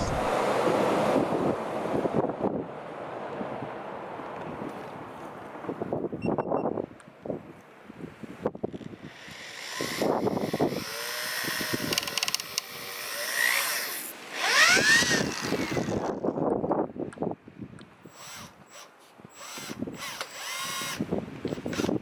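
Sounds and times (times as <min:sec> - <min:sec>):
power drill running: 0:08.8 - 0:16.2, 0:18.0 - 0:22.0.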